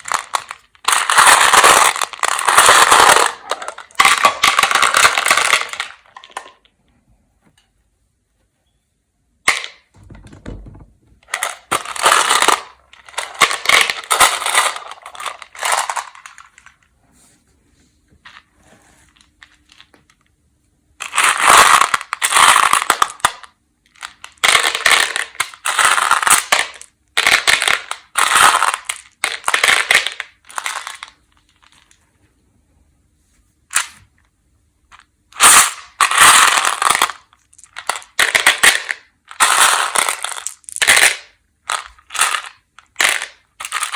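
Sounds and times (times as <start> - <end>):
candies being crunched: 0.0 - 6.7, 11.3 - 16.8, 21.0 - 32.0, 34.9 - 43.9.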